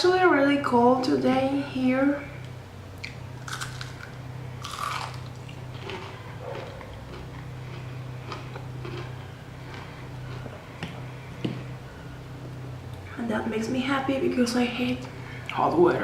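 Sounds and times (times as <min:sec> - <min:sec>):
chewing with wet mouth sounds: 0:03.0 - 0:11.0.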